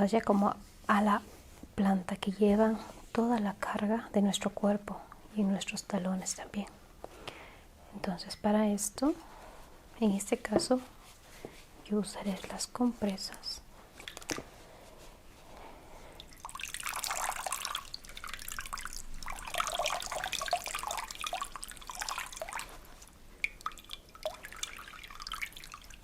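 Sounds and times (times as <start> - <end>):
water splashing into basin: 16.2 - 26.0.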